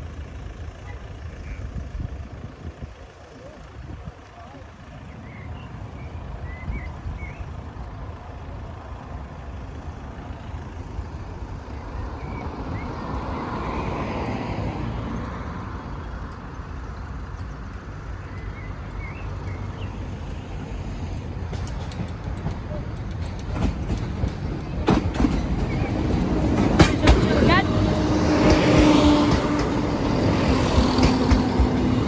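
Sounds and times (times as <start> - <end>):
vehicle passing: 25.6 - 32.0.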